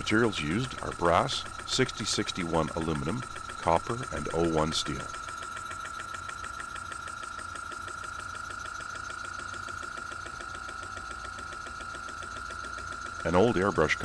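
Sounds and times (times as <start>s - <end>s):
steady high tone: 0.0s - 5.2s.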